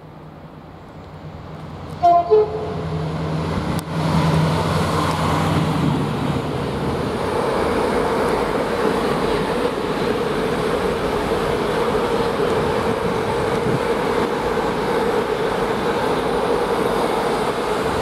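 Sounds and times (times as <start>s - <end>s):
freight train rumbling past: 0.0s - 18.0s
locomotive two-tone horn: 2.0s - 2.8s.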